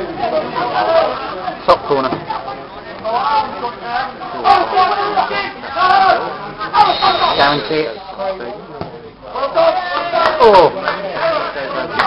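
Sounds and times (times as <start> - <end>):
crowd chanting: 2.3 - 8.4.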